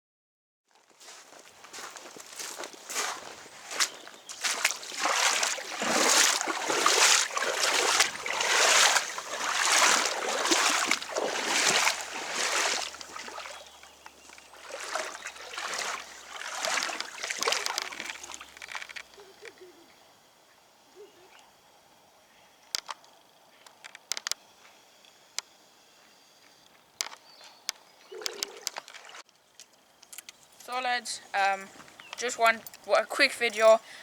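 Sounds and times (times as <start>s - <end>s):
wading through shallow water: 0.7s - 19.1s, 28.1s - 29.2s.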